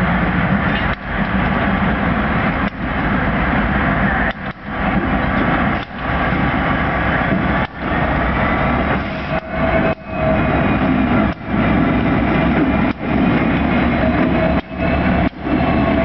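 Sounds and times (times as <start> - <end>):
diesel locomotive engine rumbling: 0.0 - 16.0.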